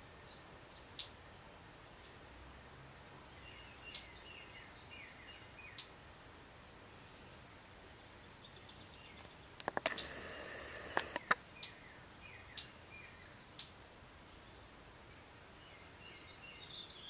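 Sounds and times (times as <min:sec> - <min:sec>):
small birds calling: 0:00.0 - 0:02.2, 0:03.2 - 0:17.0
sharp clicks: 0:09.2 - 0:11.8.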